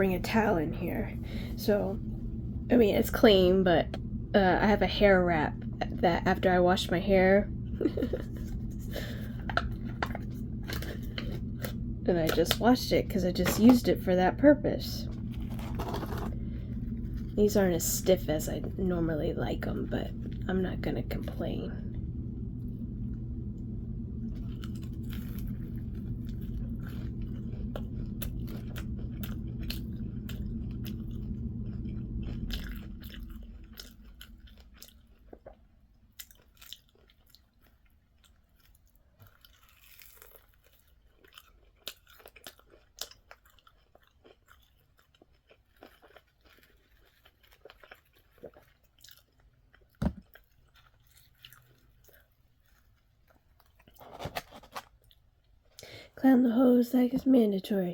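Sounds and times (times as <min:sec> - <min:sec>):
steady low hum: 0:00.0 - 0:37.1
person chewing crunchy food: 0:15.2 - 0:17.4, 0:24.2 - 0:55.3.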